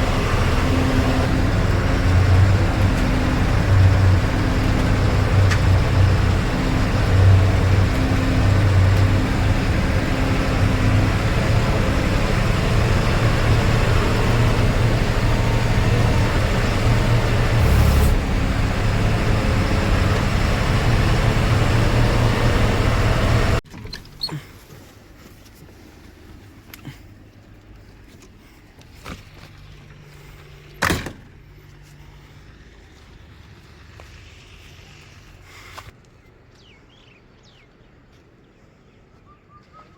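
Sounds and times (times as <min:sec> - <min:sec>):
tractor engine running: 0:00.0 - 0:25.2.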